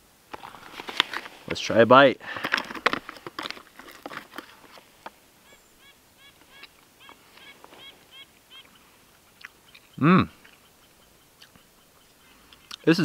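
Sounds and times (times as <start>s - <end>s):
bird calling nasal notes: 5.4s - 13.0s.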